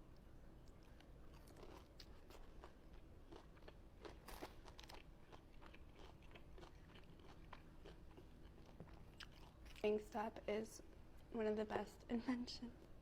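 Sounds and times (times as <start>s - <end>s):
chewing crispy fried chicken: 0.1s - 10.1s.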